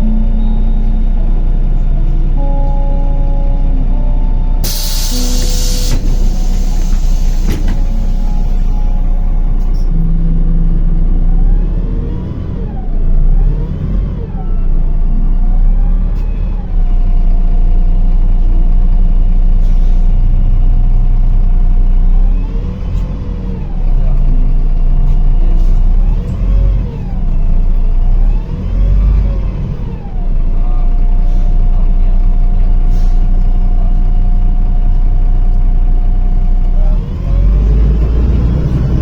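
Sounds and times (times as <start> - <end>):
drivetrain whine: 0.0 - 17.3
bus engine and road rumble: 0.0 - 39.0.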